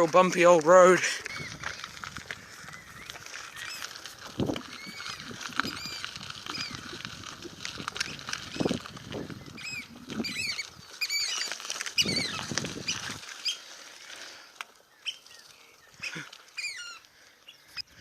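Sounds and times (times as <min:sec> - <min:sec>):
bike rumbling on gravel road: 0:00.0 - 0:18.0
shrill bird calls: 0:02.6 - 0:04.0, 0:04.6 - 0:06.9, 0:09.3 - 0:13.7, 0:14.9 - 0:18.0.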